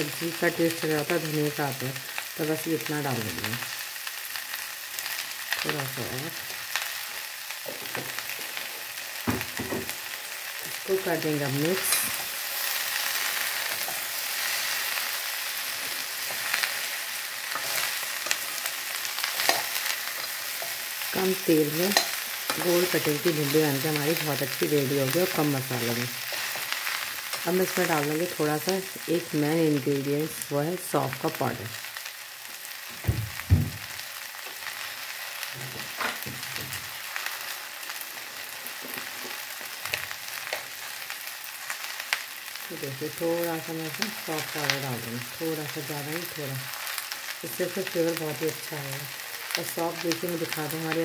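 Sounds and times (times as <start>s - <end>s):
food sizzling in hot oil: 0.0s - 51.0s
low thump: 33.0s - 33.9s.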